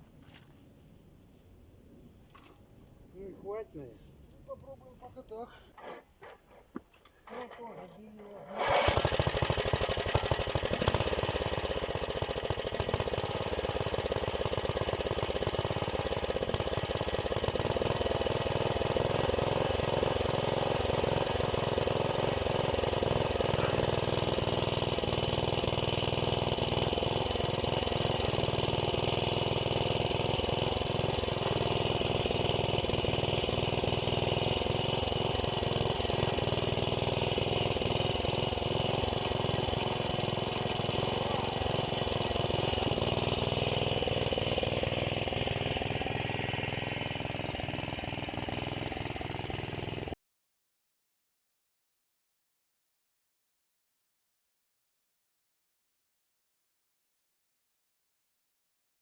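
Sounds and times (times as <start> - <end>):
tractor engine running: 7.3 - 50.2.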